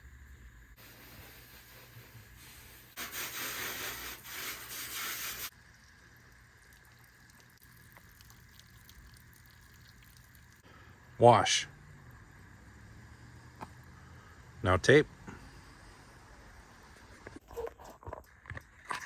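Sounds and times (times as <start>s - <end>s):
hose water spraying: 0.8s - 6.1s.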